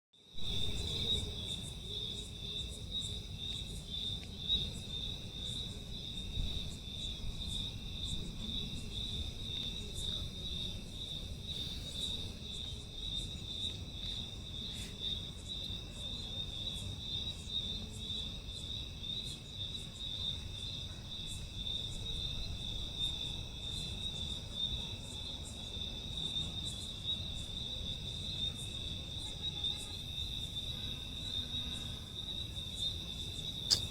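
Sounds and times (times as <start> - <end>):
insect trilling: 31.3 - 33.9.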